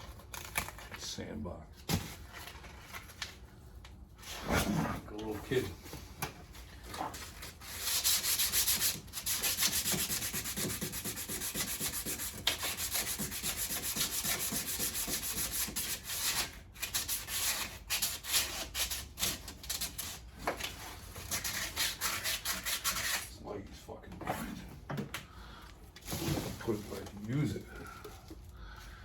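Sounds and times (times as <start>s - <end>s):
sandpaper rubbing on metal: 7.6s - 20.2s, 21.3s - 23.4s.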